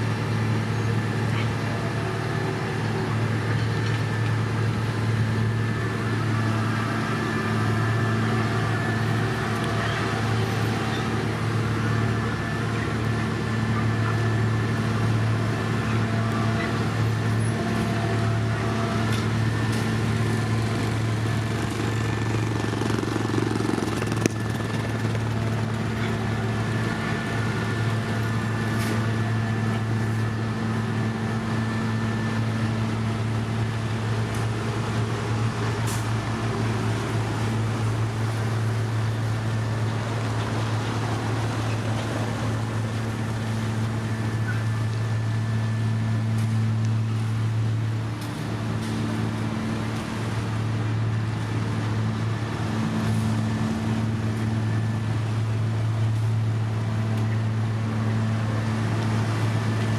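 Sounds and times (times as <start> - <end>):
heavy diesel engine humming: 0.0 - 59.9.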